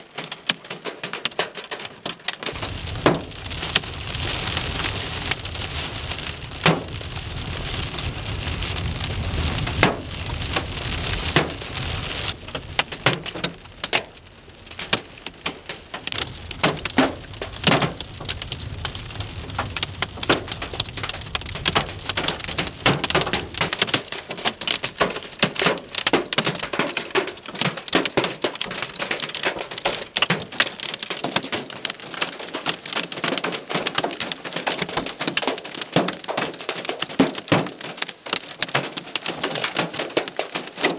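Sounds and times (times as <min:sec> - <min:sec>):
hailstones cracking on surfaces: 0:00.0 - 0:40.9
rain rushing: 0:02.1 - 0:40.9
low rumble: 0:02.6 - 0:25.3.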